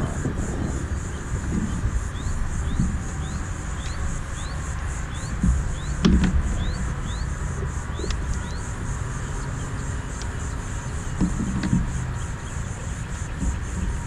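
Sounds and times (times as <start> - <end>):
low rumble: 0.0 - 14.0
pulsing insect buzz: 0.0 - 14.0
dull knocks: 5.2 - 6.9, 11.1 - 12.0, 13.3 - 14.0.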